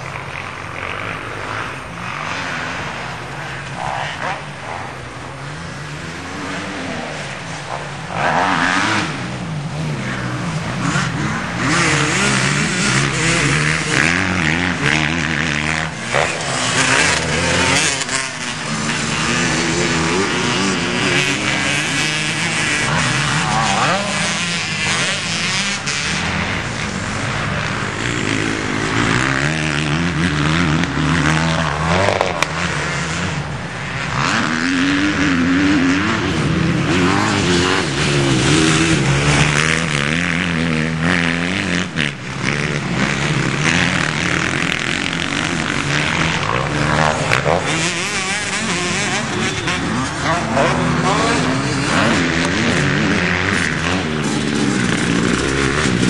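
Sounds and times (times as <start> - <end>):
loud rushing noise: 0.0 - 35.2
motorcycle engine revving: 0.0 - 56.0.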